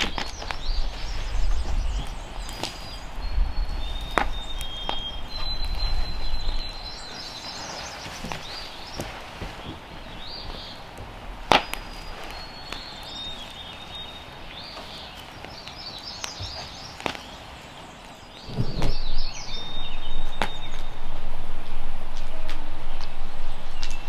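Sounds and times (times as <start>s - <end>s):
small birds chirping: 0.0s - 24.0s
rough scraping noise: 18.4s - 24.0s.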